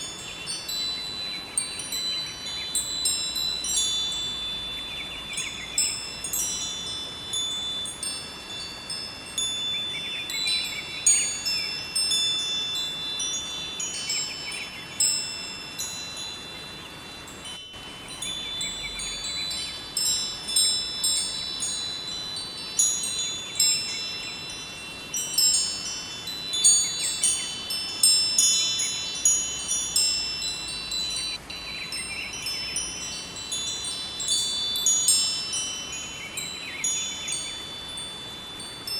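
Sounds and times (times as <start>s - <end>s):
running river water: 0.0s - 38.9s
wind chimes ringing: 0.0s - 38.9s.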